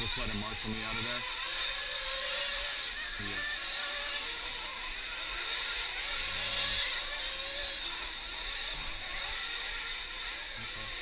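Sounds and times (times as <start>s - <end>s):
model engines buzzing high-pitched: 0.0s - 11.0s.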